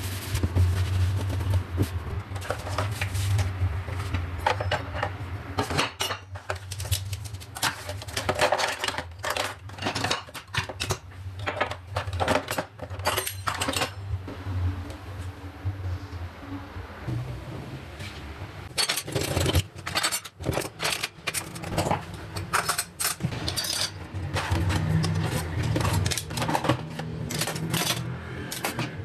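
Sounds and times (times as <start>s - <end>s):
dishes and cutlery clattering: 4.4s - 7.0s, 7.6s - 14.0s, 18.7s - 29.0s.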